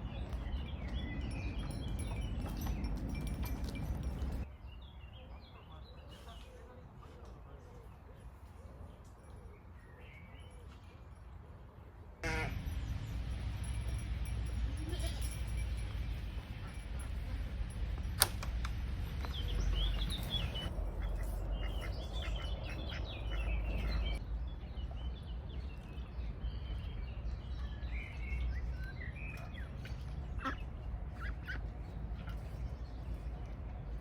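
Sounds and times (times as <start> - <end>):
birds chirping: 0.0 - 6.8, 12.2 - 34.0
low rumble: 12.2 - 27.0.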